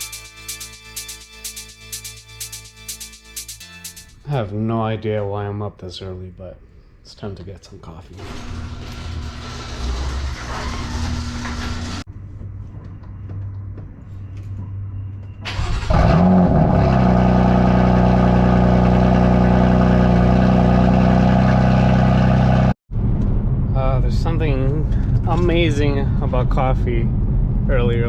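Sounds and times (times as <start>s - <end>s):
car engine starting and idling: 15.4s - 25.8s.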